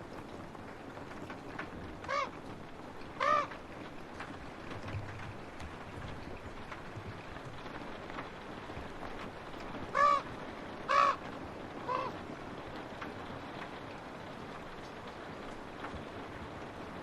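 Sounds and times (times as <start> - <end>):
rain on a window: 0.0 - 17.0
crow cawing: 2.0 - 2.4, 3.2 - 3.6, 9.9 - 10.3, 10.9 - 12.2.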